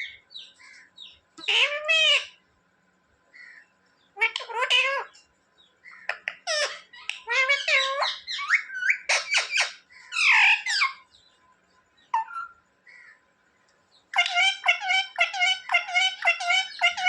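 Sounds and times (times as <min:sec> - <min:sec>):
parrot chattering and squawking: 0:01.4 - 0:02.4, 0:04.2 - 0:05.2, 0:05.9 - 0:11.1, 0:12.1 - 0:12.6, 0:14.1 - 0:17.0.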